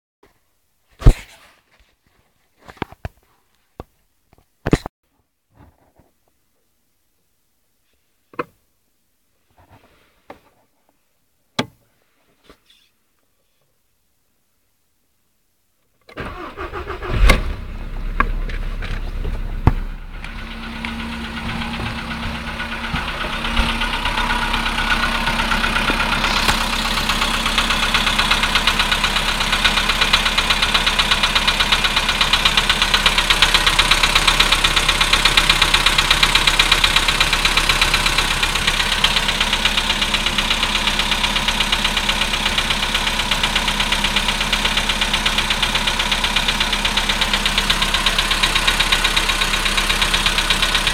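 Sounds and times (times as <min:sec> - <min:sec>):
car engine idling: 0:16.2 - 0:50.9
fast engine knocking: 0:19.6 - 0:50.9.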